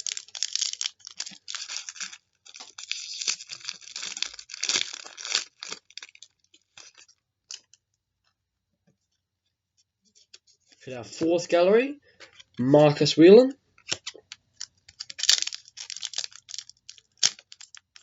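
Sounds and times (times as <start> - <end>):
card pack wrapper tearing: 0.0 - 7.7, 13.8 - 18.0.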